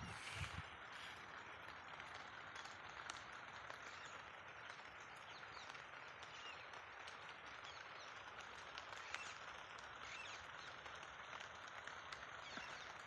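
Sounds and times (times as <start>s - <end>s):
steady hiss: 0.0s - 5.7s
small chirps: 0.1s - 13.0s.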